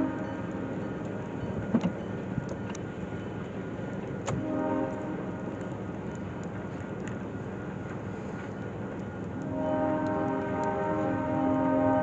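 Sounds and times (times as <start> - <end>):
faint train horn: 0.0 - 0.7, 4.3 - 5.6, 9.4 - 12.0
distant freight train rumbling: 0.0 - 12.0.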